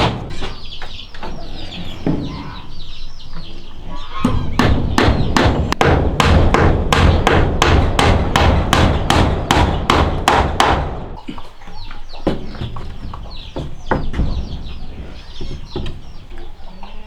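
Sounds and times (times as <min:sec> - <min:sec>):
hammer blows: 0:04.2 - 0:11.4.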